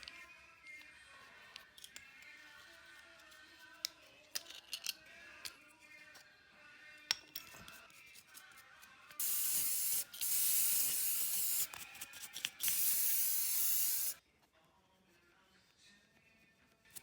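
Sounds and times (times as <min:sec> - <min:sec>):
aerosol spray can hissing: 0:09.2 - 0:14.2.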